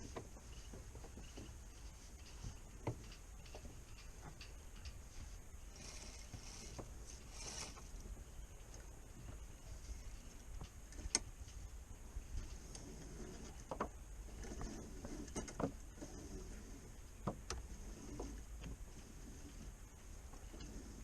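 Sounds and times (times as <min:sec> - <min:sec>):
low steady rumble: 0:00.0 - 0:21.0
sailboat rigging clicks and knocks: 0:00.0 - 0:21.0.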